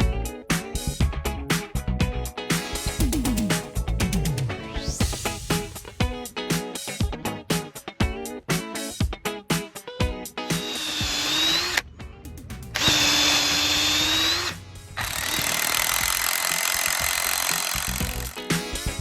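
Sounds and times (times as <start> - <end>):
funk music with plucked guitar: 0.0 - 10.6, 18.0 - 19.0
chainsaw cutting with high whine: 10.6 - 11.8, 12.8 - 18.8.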